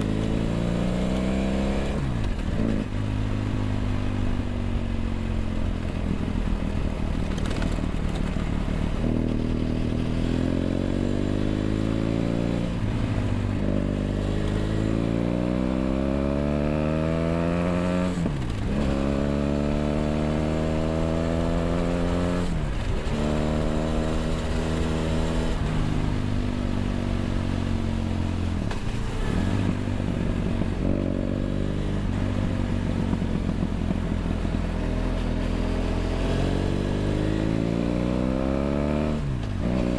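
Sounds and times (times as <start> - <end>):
motorcycle engine revving: 0.0 - 6.2, 7.1 - 39.9.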